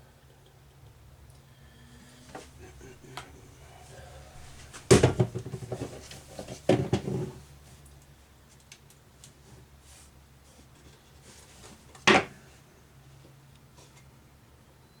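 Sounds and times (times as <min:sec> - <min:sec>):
wood knocking and scraping: 0:03.2 - 0:07.4.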